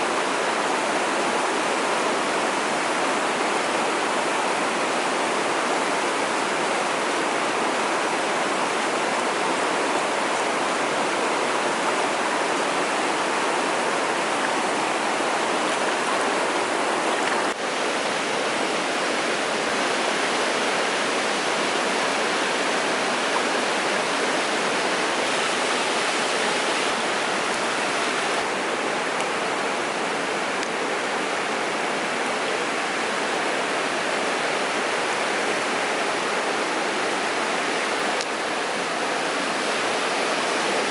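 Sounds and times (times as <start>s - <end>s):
stream water rushing over rocks: 0.0s - 40.9s.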